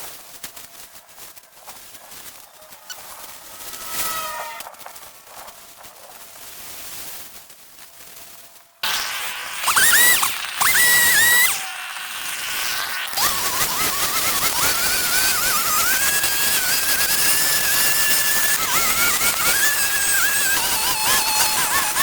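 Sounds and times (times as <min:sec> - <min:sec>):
chainsaw revving: 0:01.1 - 0:05.7, 0:08.8 - 0:22.0.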